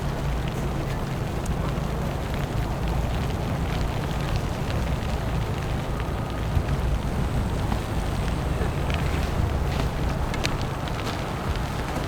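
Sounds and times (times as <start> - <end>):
low street rumble: 0.0 - 12.0.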